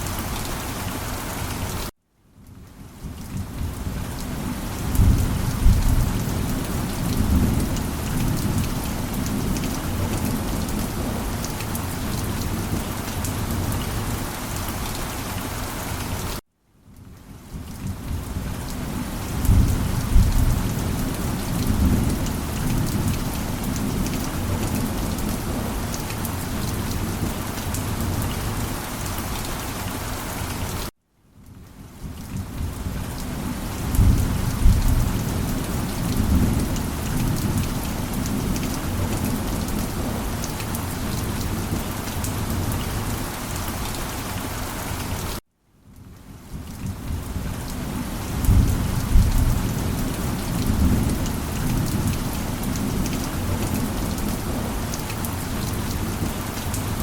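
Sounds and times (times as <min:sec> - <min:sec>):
heavy rain: 0:00.0 - 0:57.0
rolling thunder rumble: 0:04.8 - 0:11.2, 0:19.4 - 0:25.8, 0:48.4 - 0:54.7.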